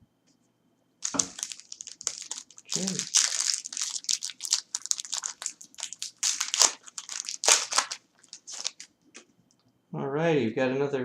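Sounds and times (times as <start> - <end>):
foil wrapper crinkling: 1.0 - 8.9.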